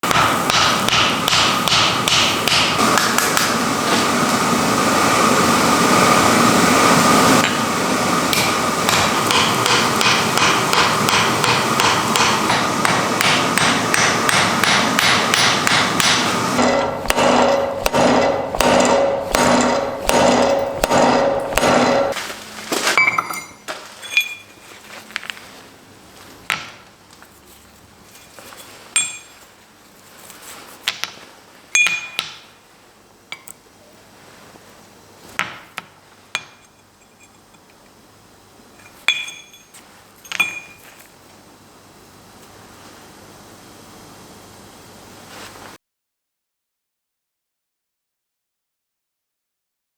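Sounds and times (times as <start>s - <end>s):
hammer blows on iron: 8.3s - 22.2s.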